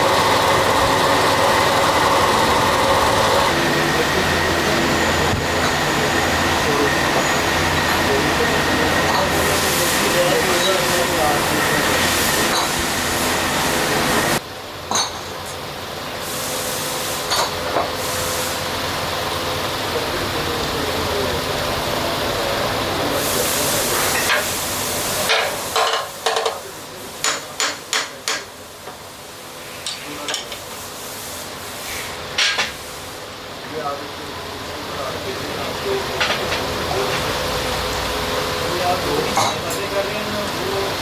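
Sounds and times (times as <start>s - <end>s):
factory machinery noise: 0.0s - 41.0s.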